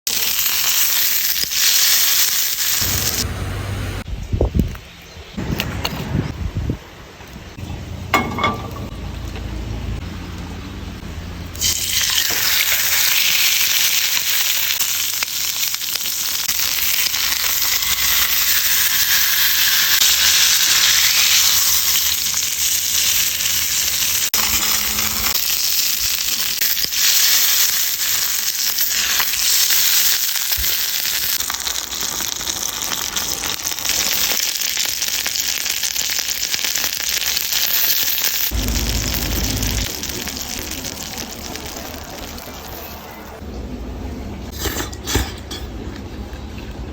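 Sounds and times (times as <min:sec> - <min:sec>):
chicken sizzling in fat: 0:00.1 - 0:03.8, 0:11.5 - 0:43.4
low rumble: 0:05.4 - 0:11.6, 0:38.5 - 0:44.5.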